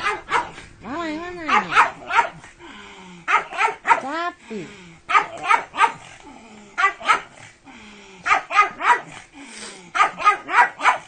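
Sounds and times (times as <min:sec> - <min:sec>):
dog barking: 0:00.0 - 0:00.6, 0:01.4 - 0:02.5, 0:03.3 - 0:04.1, 0:05.1 - 0:06.1, 0:06.8 - 0:07.4, 0:08.2 - 0:09.2, 0:09.9 - 0:11.0.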